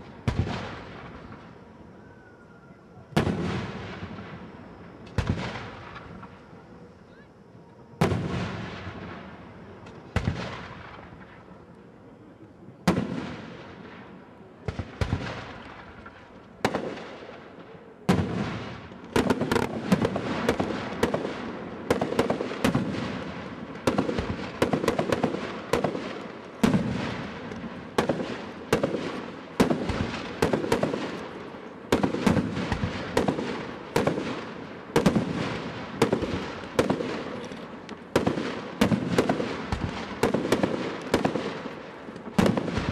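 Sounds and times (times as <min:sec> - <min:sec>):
fireworks crackling: 0:00.0 - 0:01.8, 0:02.9 - 0:42.9
fireworks bangs: 0:00.0 - 0:02.0, 0:02.8 - 0:11.9, 0:12.8 - 0:42.9.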